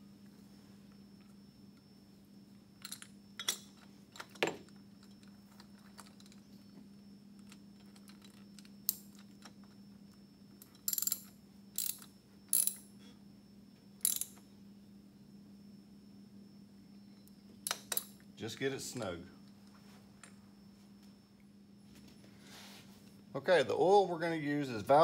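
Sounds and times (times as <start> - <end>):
metallic clicks of hand tools: 10.6 - 12.9, 14.0 - 14.4, 17.6 - 18.2.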